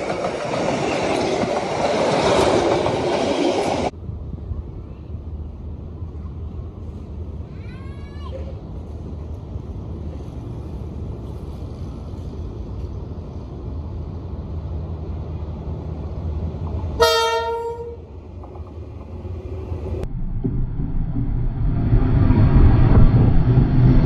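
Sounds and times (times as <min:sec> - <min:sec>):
train horn blast: 0:17.0 - 0:18.1.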